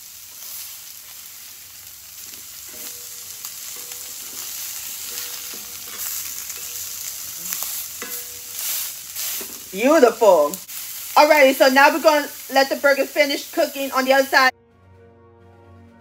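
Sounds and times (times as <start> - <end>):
burger patties sizzling in skillet: 0.0 - 14.5
metal spatula scraping pan: 2.2 - 9.8.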